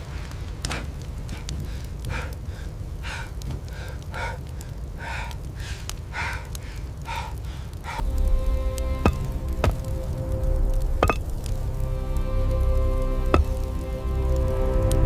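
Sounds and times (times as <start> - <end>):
steady low rumble: 0.0 - 15.0
man breathing heavily: 0.1 - 9.9.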